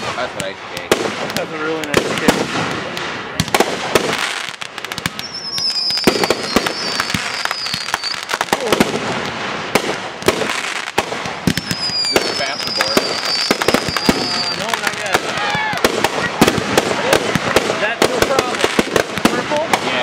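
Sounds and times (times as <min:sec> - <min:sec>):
fireworks banging: 0:00.0 - 0:20.0
firework whistle: 0:05.0 - 0:08.8, 0:11.5 - 0:16.5.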